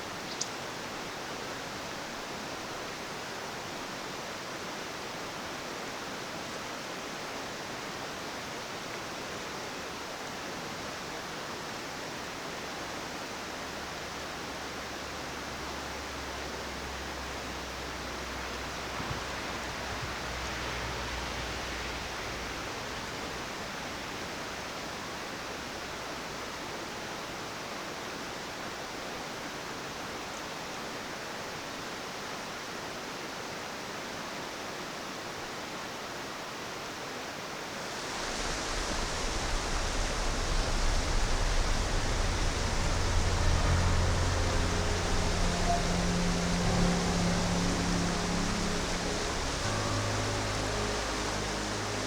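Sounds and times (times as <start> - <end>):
stream rushing water: 37.4 - 52.0.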